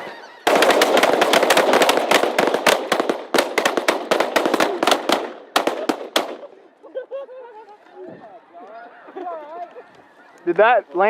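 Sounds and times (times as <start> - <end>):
shotgun fire: 0.5 - 6.5.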